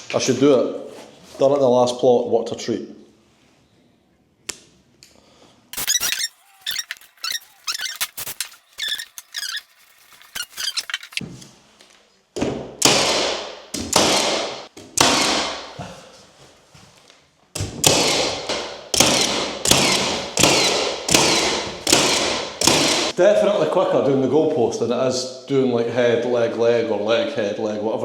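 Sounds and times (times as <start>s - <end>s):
short squeaks: 5.8s - 11.2s.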